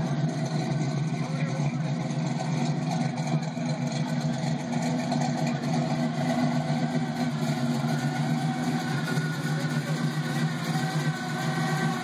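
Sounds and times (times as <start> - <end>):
engine exhaust running steadily: 0.0 - 12.0.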